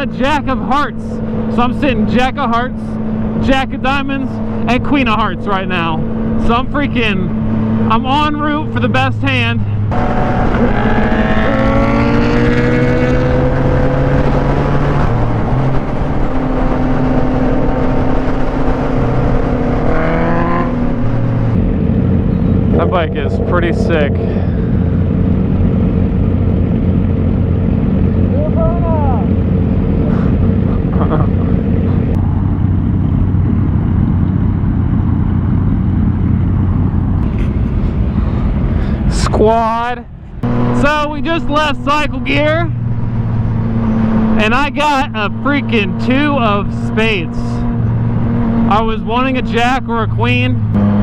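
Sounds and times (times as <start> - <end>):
motorcycle engine revving: 0.0 - 51.0
wind rush: 9.6 - 32.2, 36.7 - 41.4
wind noise: 36.5 - 44.4.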